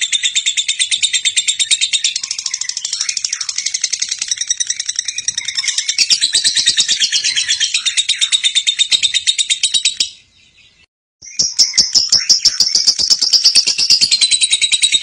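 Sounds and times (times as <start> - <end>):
lovebird chattering trill: 0.0 - 10.3, 11.2 - 15.0.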